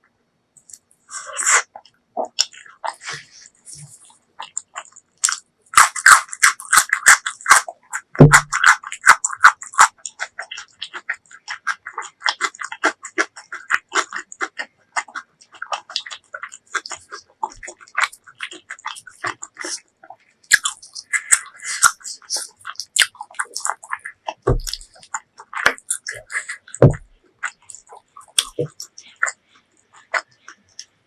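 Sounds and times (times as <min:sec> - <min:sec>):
wet chewing and mouth smacks: 0:00.6 - 0:31.0.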